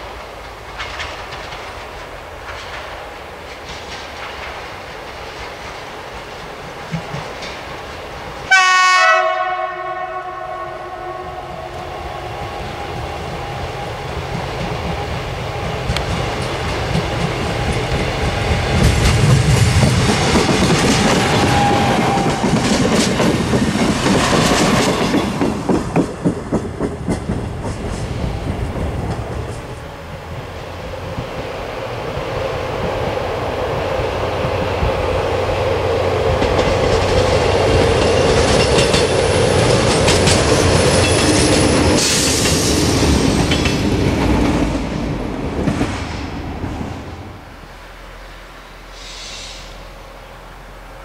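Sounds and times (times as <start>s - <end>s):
wheels clicking over rail joints: 0.0s - 8.5s, 12.9s - 47.0s
train engine and wheel noise: 0.0s - 51.0s
train horn blast: 8.5s - 12.3s.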